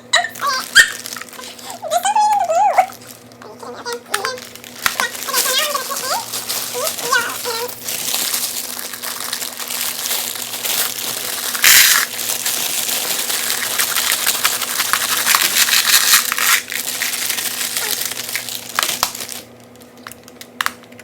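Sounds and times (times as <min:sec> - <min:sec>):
candies pouring into plastic: 0:00.1 - 0:21.0.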